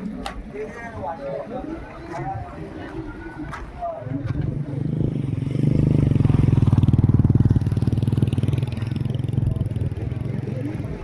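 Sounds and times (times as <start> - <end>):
dirt bike engine running: 5.5 - 10.5.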